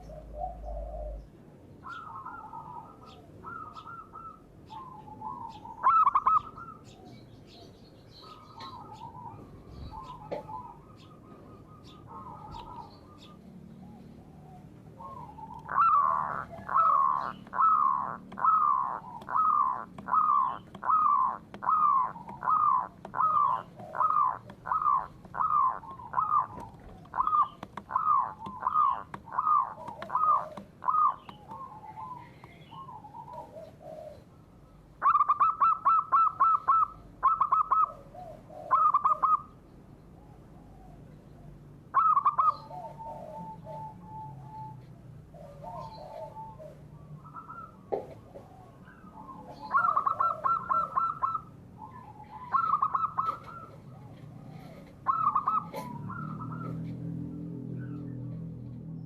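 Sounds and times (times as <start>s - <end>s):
bird repeating slurred note: 15.0s - 32.2s
bird fast trills: 15.0s - 33.0s, 55.0s - 56.8s.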